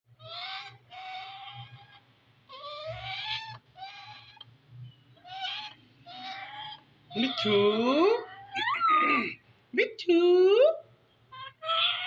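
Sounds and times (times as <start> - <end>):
parrot cries: 0.1 - 4.5, 5.2 - 9.4, 11.3 - 12.0.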